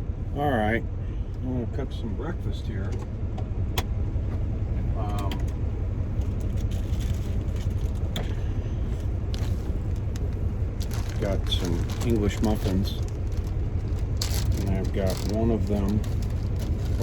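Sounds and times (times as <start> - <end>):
truck idling: 0.0 - 17.0.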